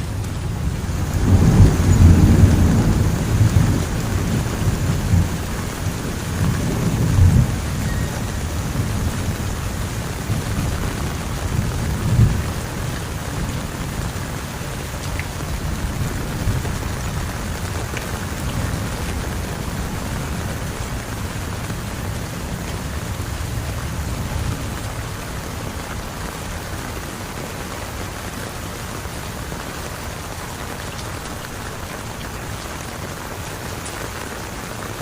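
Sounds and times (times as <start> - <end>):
thunder rumbling: 0.0 - 26.7
heavy rain falling: 0.0 - 35.0.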